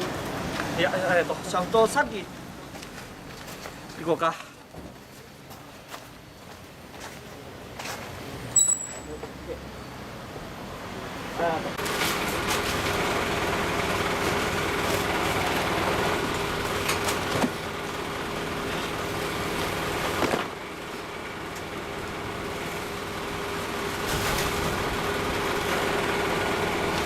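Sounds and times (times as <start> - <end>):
motor engine running: 11.8 - 27.0.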